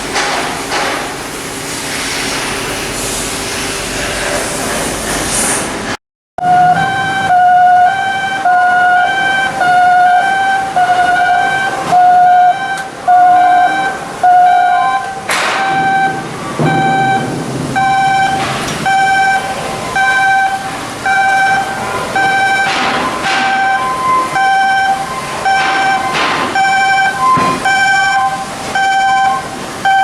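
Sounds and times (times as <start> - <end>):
electronic warning alarm beeping: 6.4 - 30.0.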